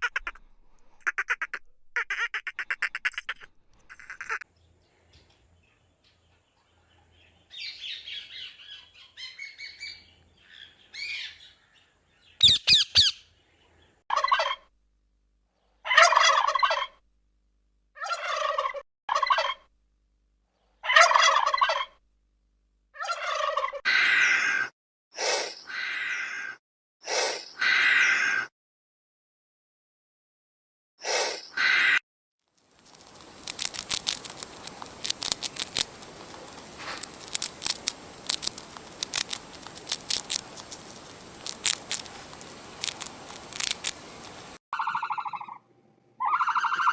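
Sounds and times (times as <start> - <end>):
fowl loud calls: 0.0 - 0.4, 1.0 - 4.4, 15.8 - 17.0, 18.0 - 19.7, 20.8 - 22.0, 23.0 - 24.6, 44.8 - 45.6, 46.2 - 46.9
fowl soft chirps: 0.0 - 4.4, 12.4 - 13.3, 14.1 - 14.7, 15.8 - 17.0, 18.0 - 19.7, 20.8 - 22.0, 23.0 - 24.7, 44.2 - 45.6, 46.2 - 46.9.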